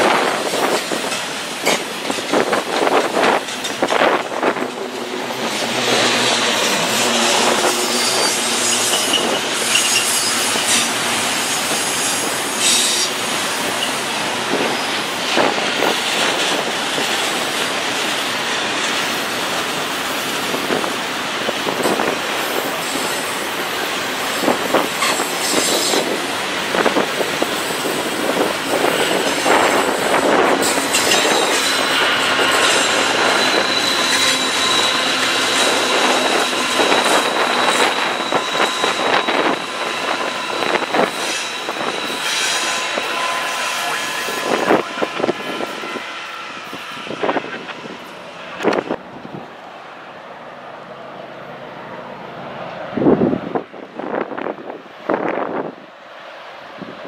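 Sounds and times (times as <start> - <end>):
freight train cars rolling: 0.0 - 57.0
wheels squealing on track: 5.4 - 14.0, 27.7 - 47.6.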